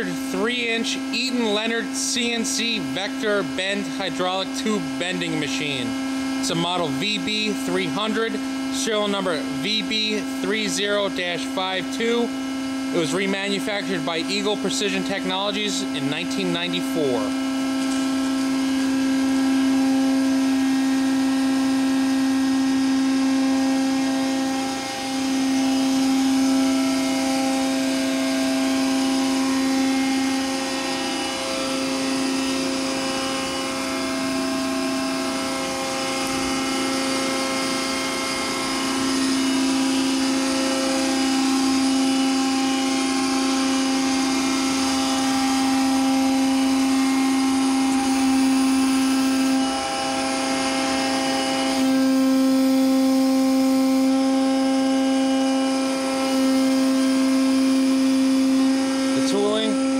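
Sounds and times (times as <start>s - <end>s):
hydraulic pump humming: 0.0s - 59.9s.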